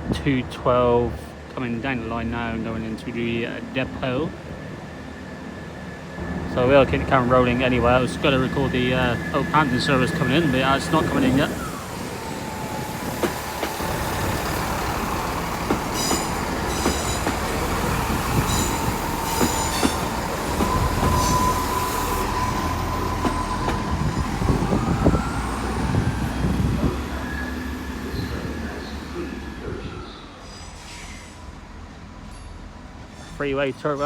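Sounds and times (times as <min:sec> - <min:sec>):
diesel train rumble and whine: 0:00.0 - 0:34.0
high wheel squeals: 0:06.0 - 0:26.0.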